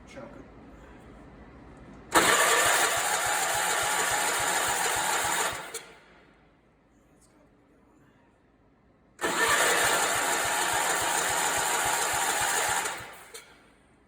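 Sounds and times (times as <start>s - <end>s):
engine cranking on starter: 2.1s - 6.0s, 9.2s - 13.6s.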